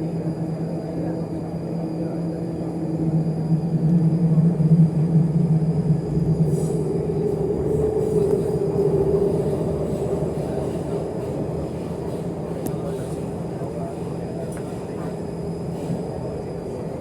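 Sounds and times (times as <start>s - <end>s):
train wheels rumbling: 4.0s - 16.9s.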